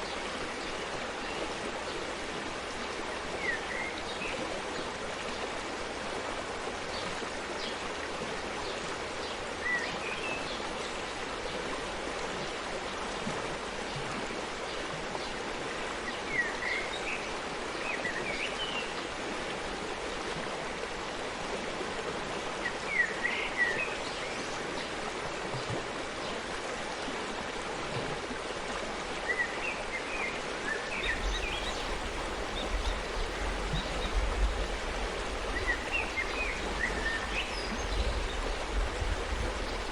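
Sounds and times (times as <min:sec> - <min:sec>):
forest stream running: 0:00.0 - 0:39.9
bird chirps: 0:31.0 - 0:39.8.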